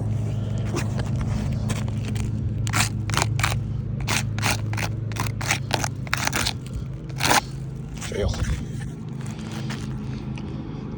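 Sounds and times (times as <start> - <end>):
short scrapes or rustles: 0.0 - 10.4
steady low hum: 0.0 - 10.9.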